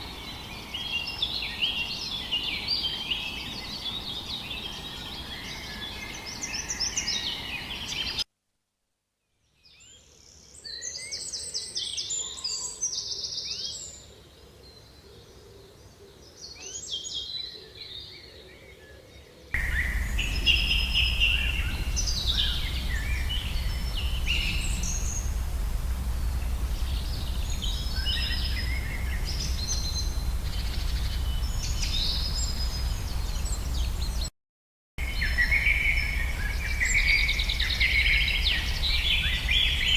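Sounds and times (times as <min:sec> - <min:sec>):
songbirds singing and chirping: 0:00.0 - 0:08.2, 0:09.5 - 0:34.3, 0:35.0 - 0:39.9
steady low rumble: 0:19.6 - 0:34.3, 0:35.0 - 0:39.9.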